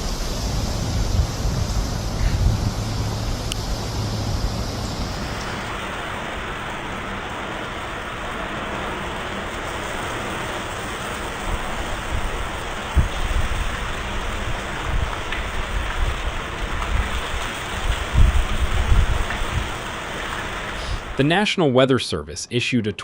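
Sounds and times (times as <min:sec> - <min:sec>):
low rumbles: 0:00.0 - 0:08.4
heavy rain pouring: 0:00.0 - 0:21.5.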